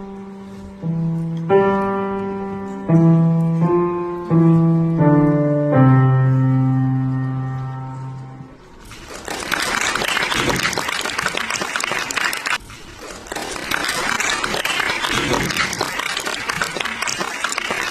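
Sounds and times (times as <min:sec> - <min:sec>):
hand clapping: 0:09.2 - 0:12.6, 0:13.3 - 0:17.9.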